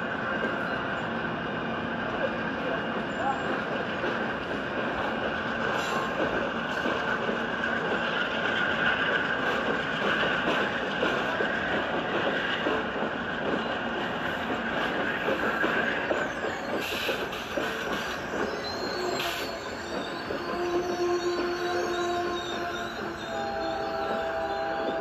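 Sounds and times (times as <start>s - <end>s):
train wheels clattering on rails: 0.0s - 25.0s
high wheel squeal: 15.9s - 24.9s.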